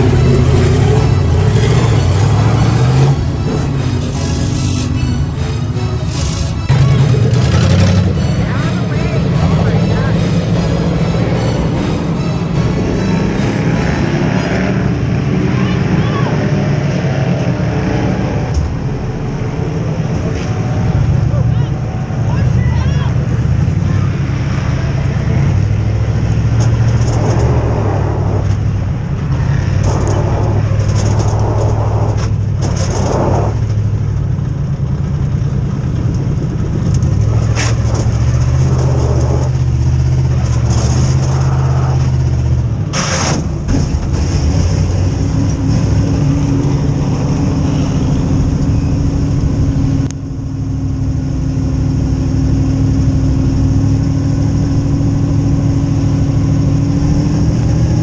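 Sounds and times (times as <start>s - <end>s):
high steady tone: 0.0s - 14.7s
race car engines running: 0.0s - 58.0s.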